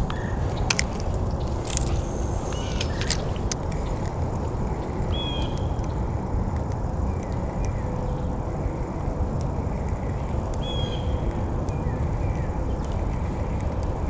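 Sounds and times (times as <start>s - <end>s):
wind rumble on microphone: 0.0s - 14.0s
bird chirps: 1.4s - 3.4s, 5.1s - 5.8s.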